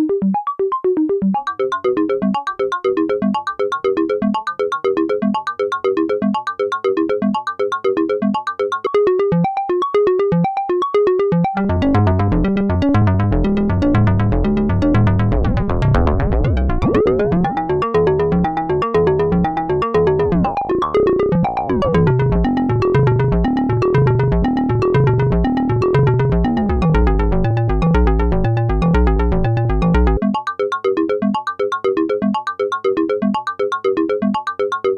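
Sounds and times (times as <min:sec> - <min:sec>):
synthesizer drum pattern: 0:11.3 - 0:30.5
deep low synth part: 0:20.2 - 0:30.2.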